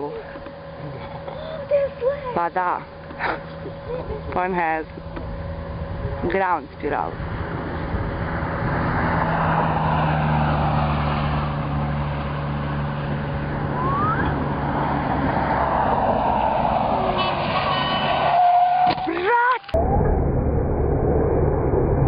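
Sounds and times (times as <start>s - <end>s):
vehicle engine running: 0.0s - 16.2s
road noise: 0.0s - 19.8s
short rising tone: 13.2s - 18.9s, 19.7s - 22.0s.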